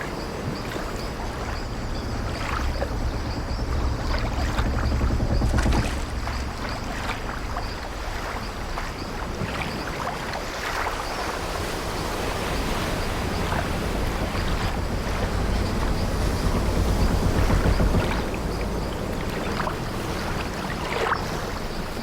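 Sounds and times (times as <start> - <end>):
sea waves washing: 0.0 - 22.0
wind blowing: 0.0 - 22.0
wooden ship timbers creaking: 2.0 - 7.4, 12.8 - 20.4.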